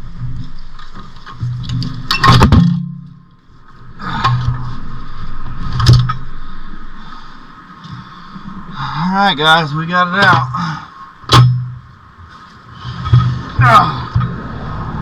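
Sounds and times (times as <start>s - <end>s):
metal clanking and scraping: 0.2s - 3.3s, 5.7s - 6.3s, 11.3s - 11.9s, 12.8s - 14.4s
sharp metal knocks: 1.5s - 3.2s, 11.3s - 11.9s.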